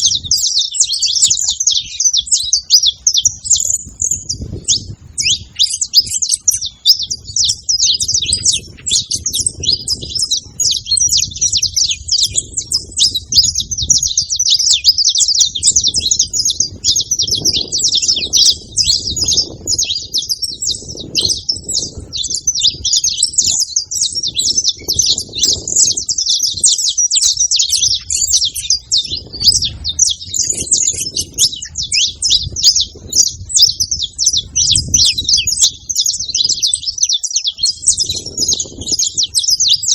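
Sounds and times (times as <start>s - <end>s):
finches chirping and trilling: 0.0s - 39.9s.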